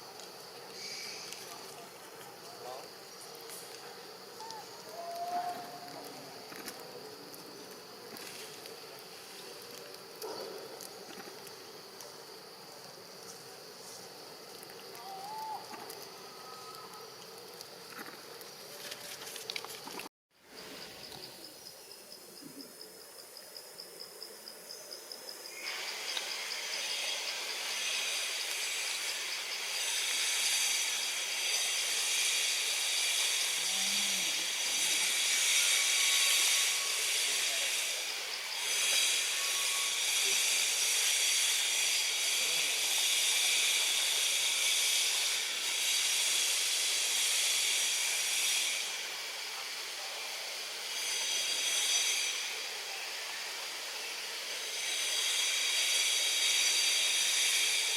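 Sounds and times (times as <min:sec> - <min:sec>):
insect chorus buzzing: 0:00.0 - 0:57.9.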